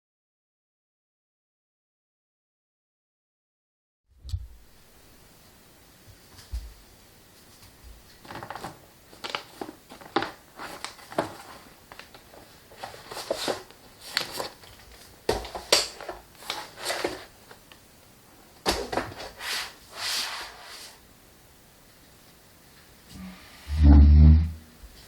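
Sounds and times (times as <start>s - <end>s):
rustling and crinkling: 4.2s - 17.8s.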